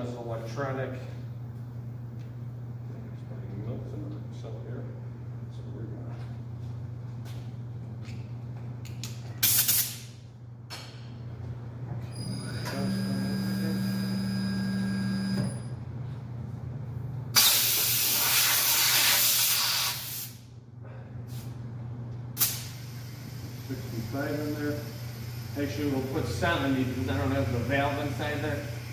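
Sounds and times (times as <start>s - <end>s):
compressed air hissing into tyre: 9.4s - 10.0s, 17.4s - 20.4s, 22.4s - 25.6s
inflator buzz: 12.1s - 15.7s.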